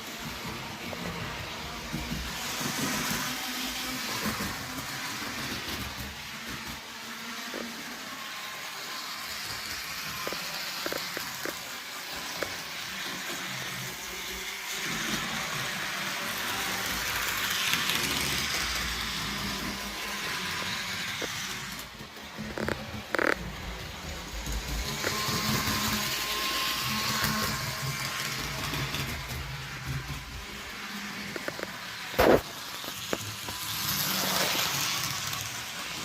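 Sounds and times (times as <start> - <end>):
model train motor whir: 0.0 - 36.0
wheels clicking on rail joints: 21.4 - 29.5.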